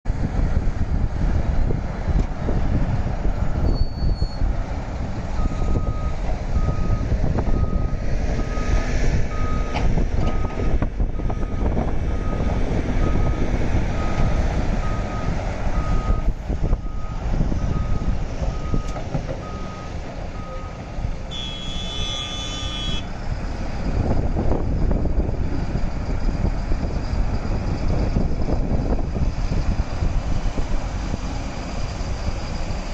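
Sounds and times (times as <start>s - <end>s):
heavy diesel engines rumbling: 0.1s - 32.9s
reversing alarm beeping: 5.4s - 13.4s, 14.0s - 23.1s
vehicle horn: 21.3s - 23.1s.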